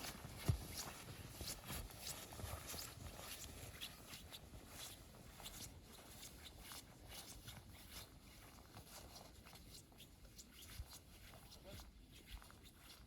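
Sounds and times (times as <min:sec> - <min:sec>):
footsteps crunching in snow: 0:00.0 - 0:10.7.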